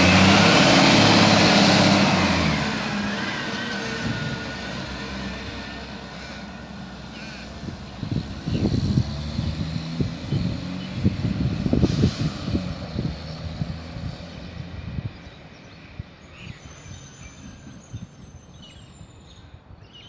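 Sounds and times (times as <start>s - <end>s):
garbage truck engine: 0.0s - 14.6s.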